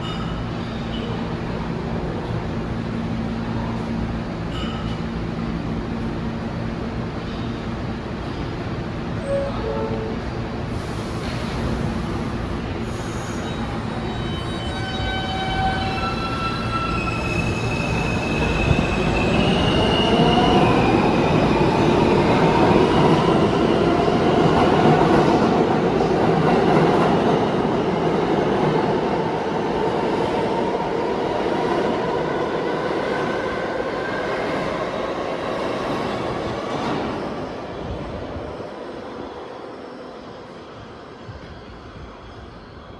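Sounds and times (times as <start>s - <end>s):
train wheels squealing on rails: 0.0s - 1.3s, 9.2s - 26.6s
heavy train rumble: 0.0s - 42.9s.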